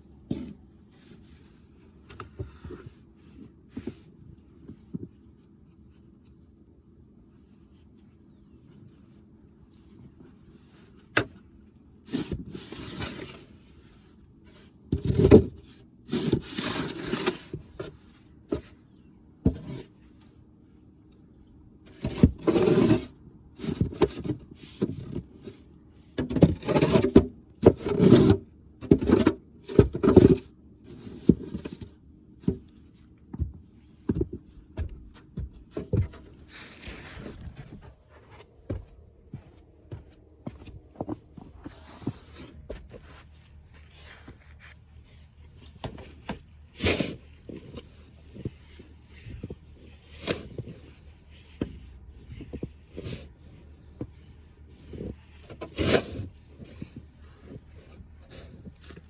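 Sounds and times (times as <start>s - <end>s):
scraping and rubbing: 34.8s - 38.7s, 40.6s - 59.0s.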